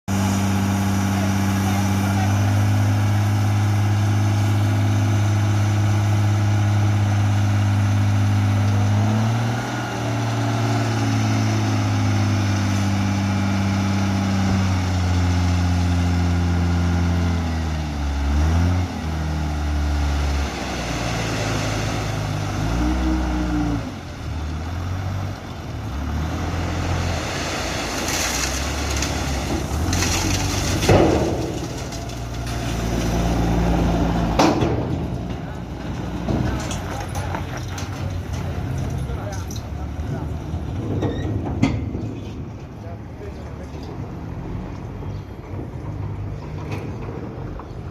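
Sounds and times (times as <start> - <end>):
diesel truck engine revving: 0.0 - 41.0
rushing clattering noise: 27.0 - 44.0.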